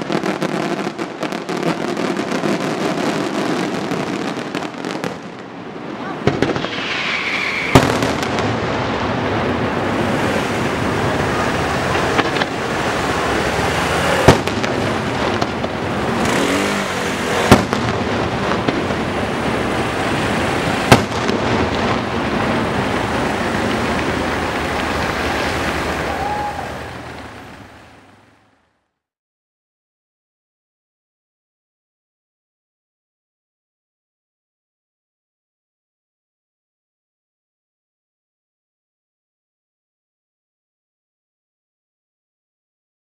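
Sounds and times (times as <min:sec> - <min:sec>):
loud firework bangs: 0:00.0 - 0:28.2
fireworks crackling: 0:00.0 - 0:28.7.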